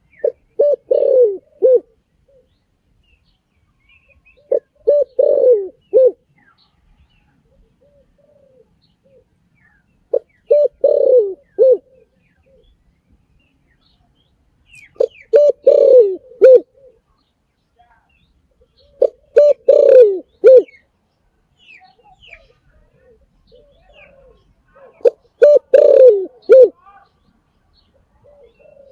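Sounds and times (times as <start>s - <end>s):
dove cooing: 0.0s - 2.6s, 4.2s - 6.3s, 7.4s - 9.3s, 10.1s - 12.8s, 14.9s - 17.1s, 18.7s - 20.8s, 21.9s - 26.8s, 28.0s - 28.9s.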